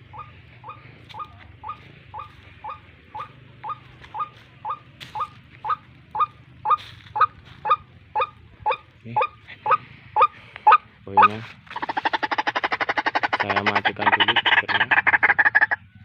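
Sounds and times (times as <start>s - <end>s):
recorded bird call through speaker: 0.0s - 16.0s.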